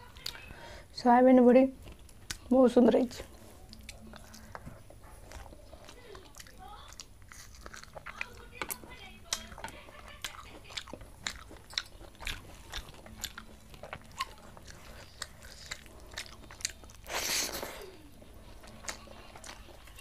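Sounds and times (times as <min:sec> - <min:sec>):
person chewing food: 0:01.8 - 0:20.0.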